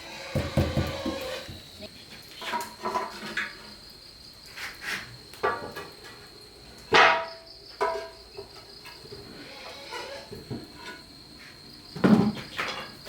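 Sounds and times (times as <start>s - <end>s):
crickets trilling: 0.0s - 13.0s
knocks and clatters: 0.3s - 1.6s.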